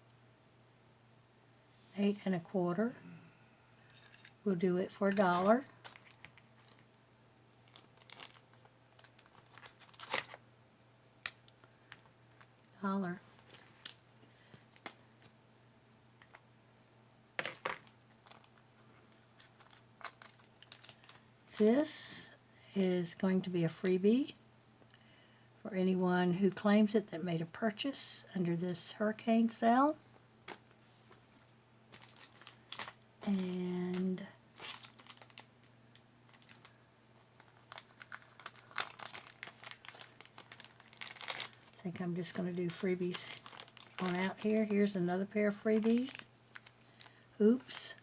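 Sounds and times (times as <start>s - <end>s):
faint steady hum: 0.0s - 48.0s
packaging rustling: 5.0s - 10.4s, 13.2s - 15.4s, 17.4s - 21.9s, 30.1s - 48.0s.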